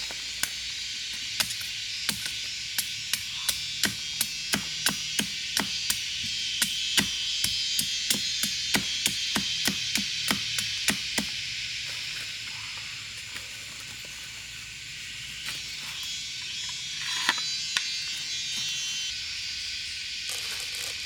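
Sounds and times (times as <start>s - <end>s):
steady high hiss: 0.0s - 21.0s
chopping strikes: 0.1s - 11.4s.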